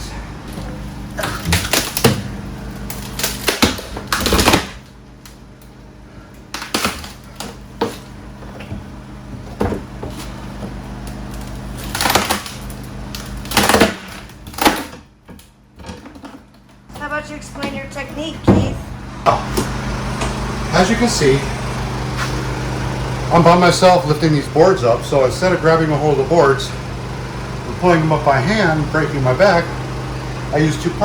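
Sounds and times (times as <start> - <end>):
wood cracking: 1.1 - 5.8, 6.4 - 8.1, 11.0 - 15.5.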